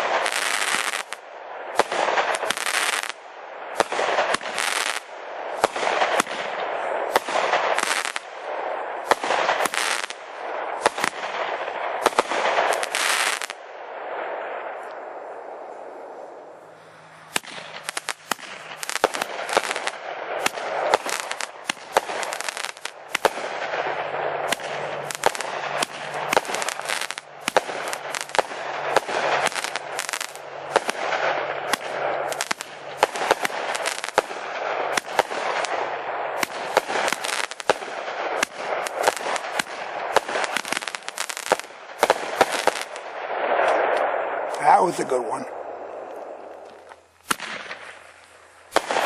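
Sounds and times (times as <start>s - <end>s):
fireworks bangs and crackles: 0.0s - 15.7s, 17.1s - 49.0s.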